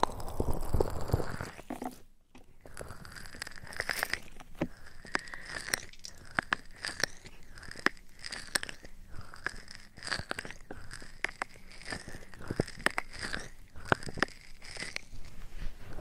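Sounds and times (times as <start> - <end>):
crisp clicks and crackles: 0.0 - 16.0
soft rubbing on microphone: 15.1 - 16.0.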